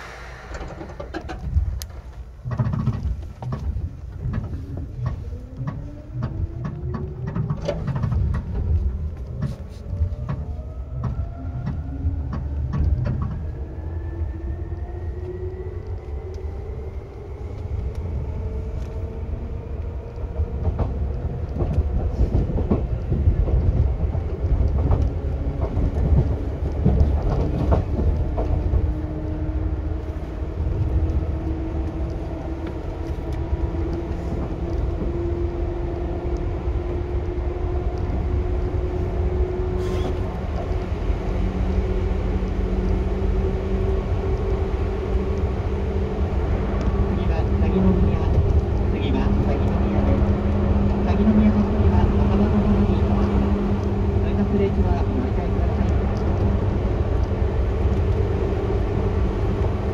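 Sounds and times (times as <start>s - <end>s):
traction motor hum rising: 0.0s - 2.7s, 3.5s - 22.1s, 22.8s - 54.6s
clicks from rail joints: 0.0s - 13.9s, 14.7s - 29.2s
train wheels rumbling on rail: 0.0s - 59.9s.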